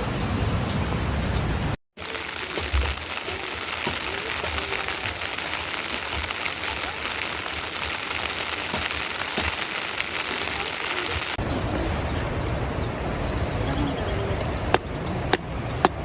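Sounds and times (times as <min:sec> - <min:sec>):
steady rain falling: 0:00.0 - 0:13.2
sharp clicks: 0:02.0 - 0:11.4
faint voices: 0:02.0 - 0:16.0.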